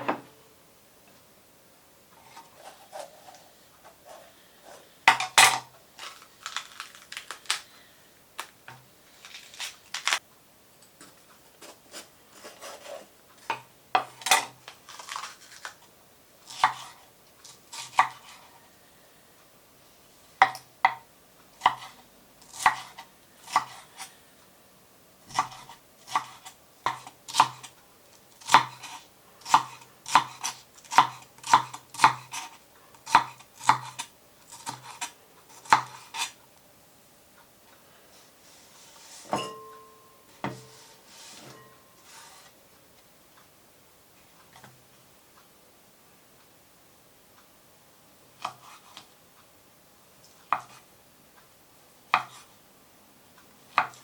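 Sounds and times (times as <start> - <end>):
knife chopping on cutting board: 16.5 - 17.0, 17.8 - 18.3, 21.6 - 23.8, 25.3 - 27.7, 28.4 - 32.5, 33.1 - 36.4, 50.5 - 50.8, 52.1 - 52.5, 53.8 - 54.0.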